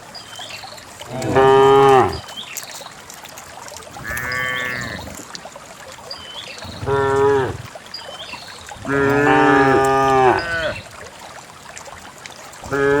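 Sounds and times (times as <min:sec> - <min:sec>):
cows mooing: 0:01.1 - 0:02.2, 0:04.0 - 0:05.1, 0:06.8 - 0:07.6, 0:08.8 - 0:10.8.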